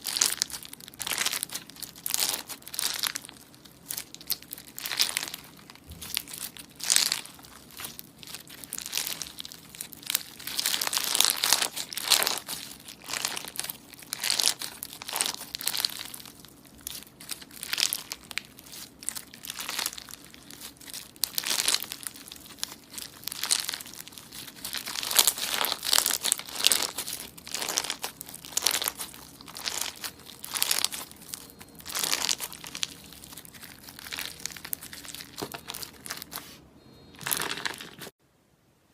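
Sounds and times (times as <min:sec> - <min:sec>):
slime squeezed by hand crackling: 0:00.0 - 0:38.1.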